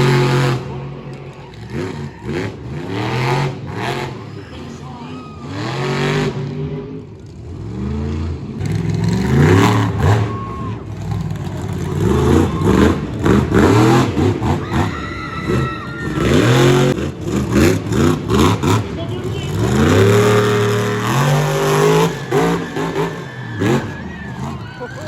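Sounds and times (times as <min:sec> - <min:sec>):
monster truck engine revving: 0:00.0 - 0:25.0.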